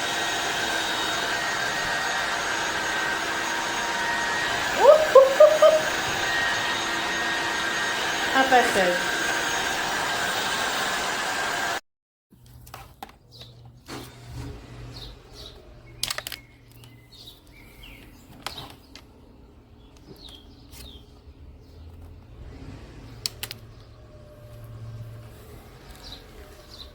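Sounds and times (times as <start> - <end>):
floor cleaner running: 0.0 - 11.8, 24.0 - 26.9.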